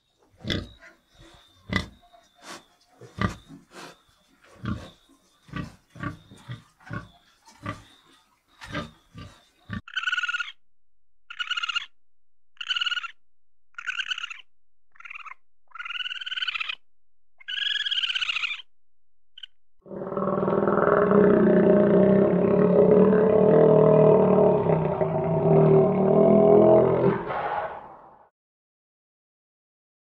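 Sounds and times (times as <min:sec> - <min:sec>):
raccoon squealing calls: 0:09.9 - 0:10.6, 0:11.3 - 0:11.9, 0:12.6 - 0:16.8, 0:17.4 - 0:18.7
crocodile deep call: 0:19.4 - 0:28.2.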